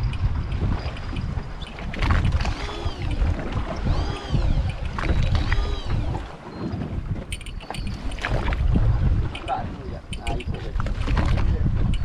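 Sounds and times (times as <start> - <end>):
light ticks: 0.0 - 5.7, 9.3 - 10.7
water noise: 0.0 - 12.0
wind: 0.0 - 12.0
squeak rising and falling in pitch: 0.8 - 6.6.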